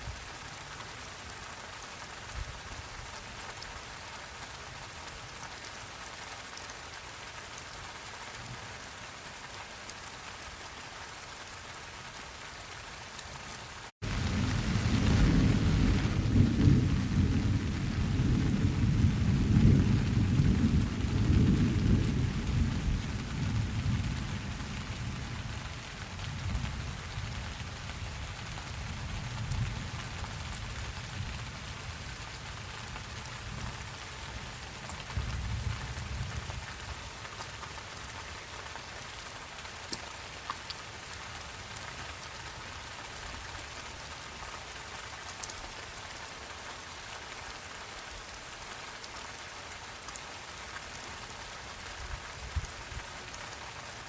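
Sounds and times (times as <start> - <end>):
rain hissing: 12.3 - 45.2
thunder rolling: 14.0 - 24.2.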